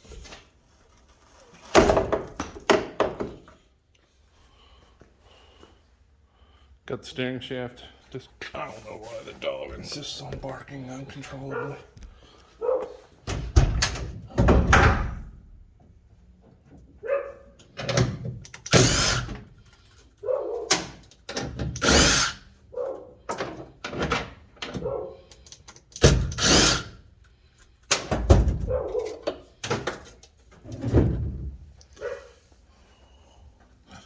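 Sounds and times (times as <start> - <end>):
dog barking: 11.5 - 11.9, 12.6 - 13.0, 17.0 - 17.6, 20.2 - 20.7, 22.7 - 23.2, 24.8 - 25.2, 28.6 - 29.2, 32.0 - 32.4
metal-working tool noise: 18.6 - 19.4.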